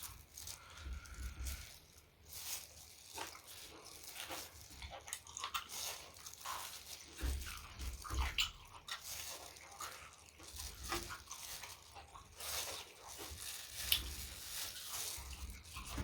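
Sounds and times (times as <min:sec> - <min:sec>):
person chewing and biting food: 0:00.0 - 0:16.0.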